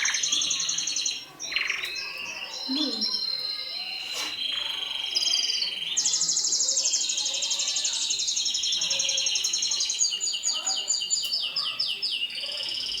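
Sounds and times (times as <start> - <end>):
canary singing: 0.0 - 6.0.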